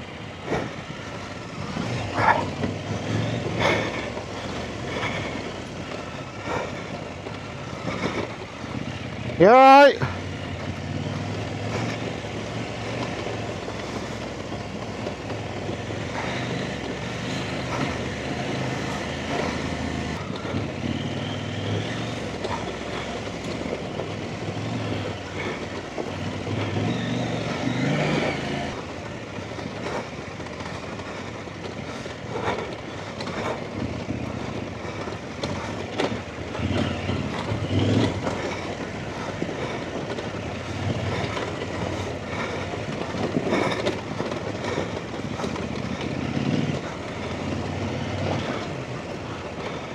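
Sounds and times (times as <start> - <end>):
dirt bike engine revving: 0.0 - 49.9
knocks and clatter: 10.6 - 49.9.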